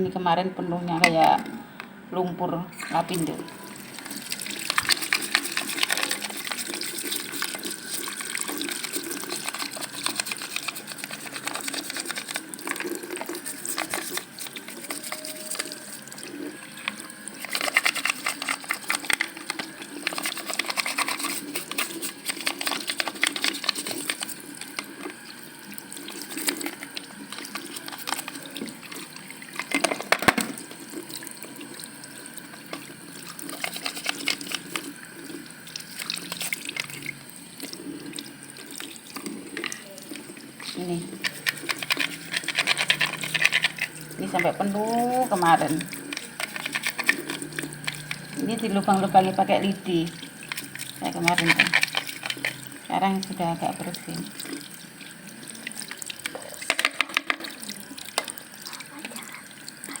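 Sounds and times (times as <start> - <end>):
tap water running: 0.0 - 60.0
filter clicks and knocks: 29.8 - 30.6.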